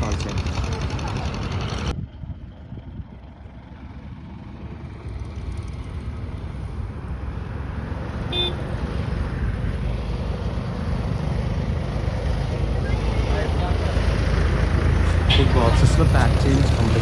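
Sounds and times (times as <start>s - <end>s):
brief horn toot: 8.3s - 8.6s, 15.3s - 16.0s.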